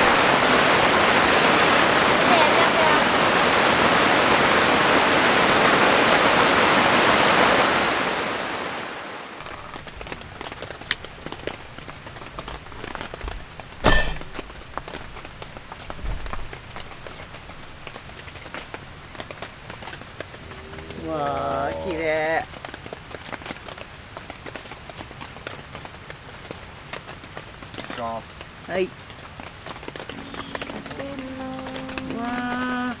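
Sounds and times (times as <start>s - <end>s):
heavy rain on a tent: 0.0s - 33.0s.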